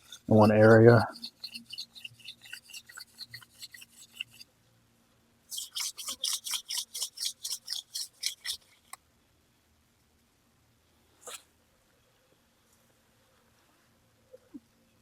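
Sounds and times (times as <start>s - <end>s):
wooden spindle grinding into board: 0.0s - 4.4s, 5.5s - 8.6s.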